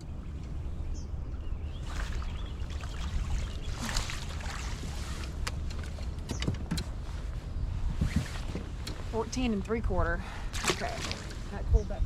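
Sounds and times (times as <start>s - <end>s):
wind and water rumble: 0.0s - 12.0s
water splash: 1.8s - 5.4s, 10.5s - 11.4s.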